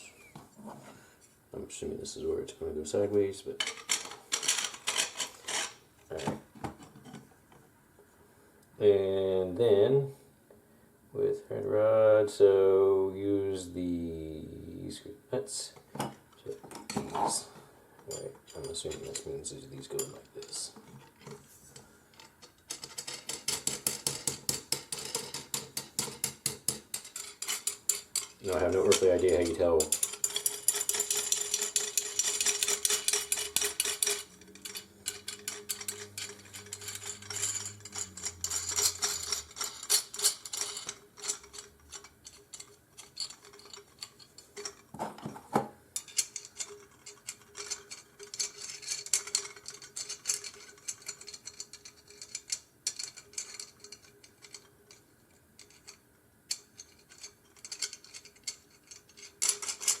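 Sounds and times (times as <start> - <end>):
small metal hardware clinking: 3.6 - 5.8, 22.2 - 44.9, 46.0 - 60.0.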